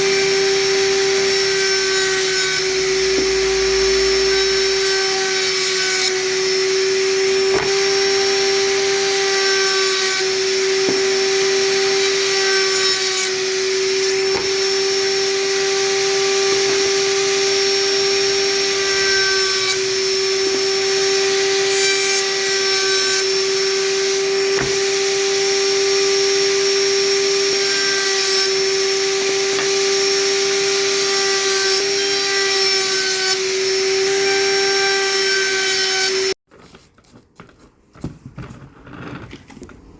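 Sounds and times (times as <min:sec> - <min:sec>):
electric power tool running: 0:00.0 - 0:31.0.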